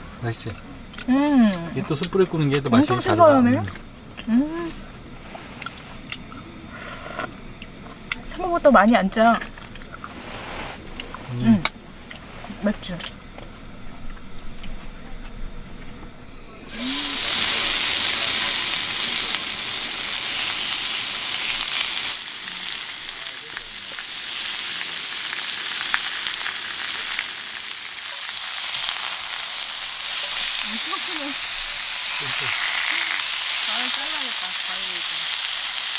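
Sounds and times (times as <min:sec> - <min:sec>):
meat sizzling on a grill: 0:01.1 - 0:03.7, 0:16.5 - 0:35.9.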